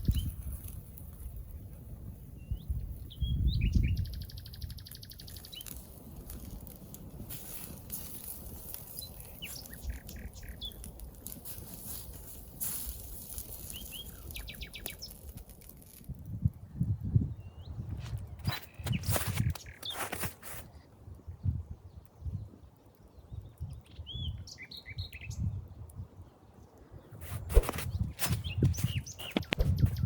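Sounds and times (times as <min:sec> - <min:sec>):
birds whistled chirps: 0:02.4 - 0:05.9, 0:07.5 - 0:11.0, 0:13.2 - 0:15.2, 0:18.4 - 0:20.8, 0:23.2 - 0:25.6, 0:27.0 - 0:30.0.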